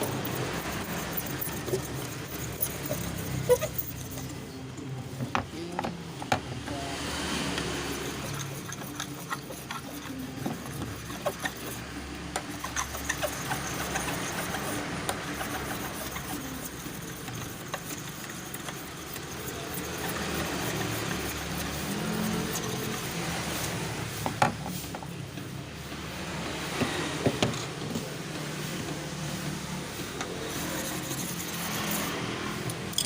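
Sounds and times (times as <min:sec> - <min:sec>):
glass scraping plastic lens: 0:00.0 - 0:04.9, 0:07.6 - 0:24.3, 0:30.4 - 0:32.2.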